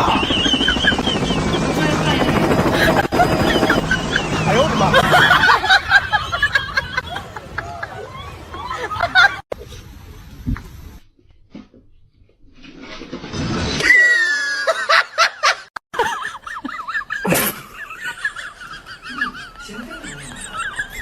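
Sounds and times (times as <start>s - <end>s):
person laughing: 0.0s - 9.4s, 14.2s - 21.0s.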